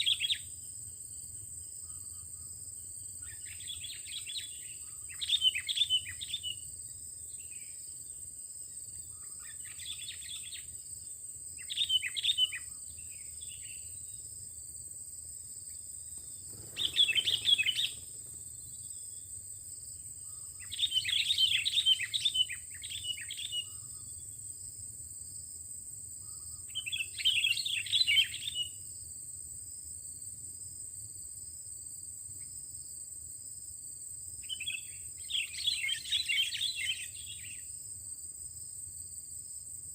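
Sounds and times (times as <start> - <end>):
bird chirping: 0.0 - 0.5, 3.2 - 6.6, 9.0 - 10.7, 11.6 - 14.2, 16.1 - 19.4, 20.2 - 24.2, 26.2 - 28.8, 34.4 - 37.7.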